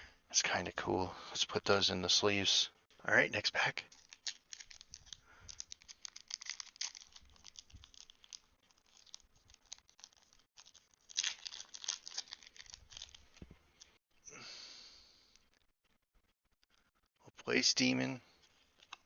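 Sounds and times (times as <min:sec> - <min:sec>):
wrapper tearing and crinkling: 0:03.8 - 0:13.4, 0:18.4 - 0:19.0.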